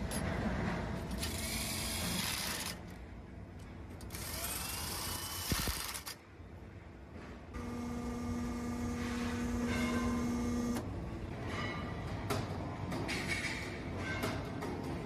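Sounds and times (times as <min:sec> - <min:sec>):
machine hum: 0:07.5 - 0:11.3
machine noise: 0:07.6 - 0:10.8.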